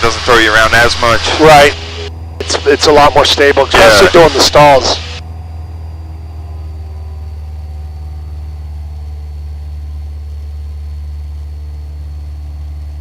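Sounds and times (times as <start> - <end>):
airplane engine and propeller droning: 0.0 - 13.0
high-pitched whine: 0.0 - 13.0.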